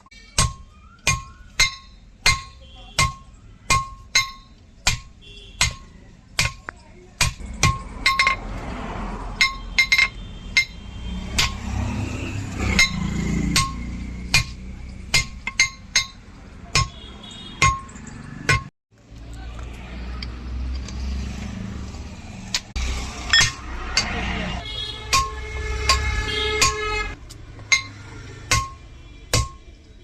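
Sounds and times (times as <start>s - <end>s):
hammer striking steel on anvil: 0.2s - 8.4s, 9.4s - 11.7s, 12.7s - 18.7s, 23.3s - 24.2s, 25.1s - 27.0s, 27.7s - 29.7s.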